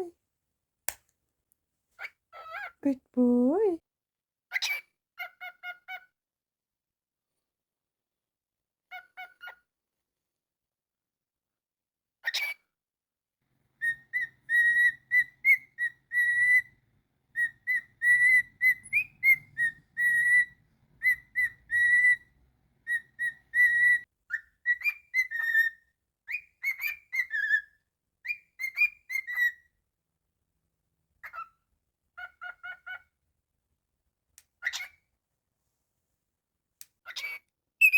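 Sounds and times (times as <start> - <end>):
cockatiel whistling a tune: 13.8 - 29.6, 37.2 - 37.9.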